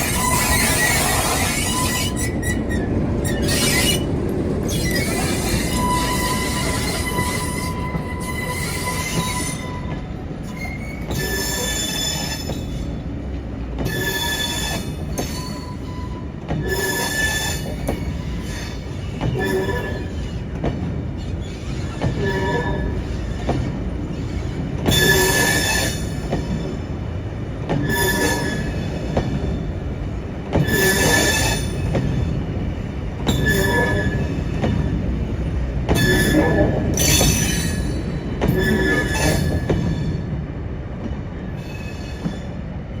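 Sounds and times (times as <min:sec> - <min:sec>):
wheel squeal: 0:00.0 - 0:12.9, 0:13.9 - 0:20.4, 0:21.2 - 0:26.8, 0:27.8 - 0:29.2, 0:30.6 - 0:32.2, 0:33.3 - 0:35.0, 0:36.0 - 0:40.2
train wheels rumbling on track: 0:00.0 - 0:43.0.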